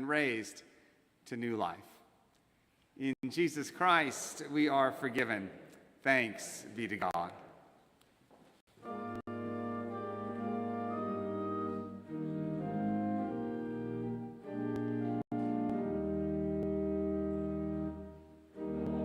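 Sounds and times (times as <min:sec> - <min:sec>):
slow instrumental chords: 0:08.8 - 0:19.0.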